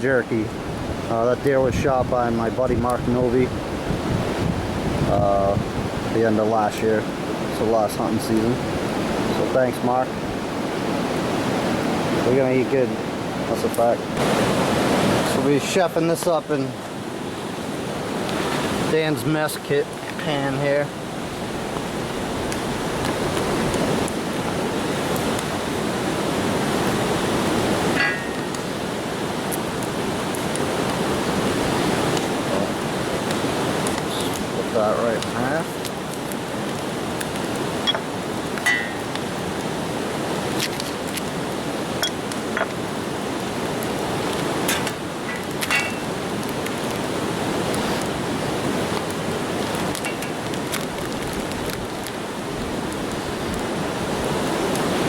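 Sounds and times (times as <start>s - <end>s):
campfire crackling: 0.0s - 55.0s
river rapids rushing: 10.1s - 55.0s
sharp pops of fire: 21.7s - 54.8s.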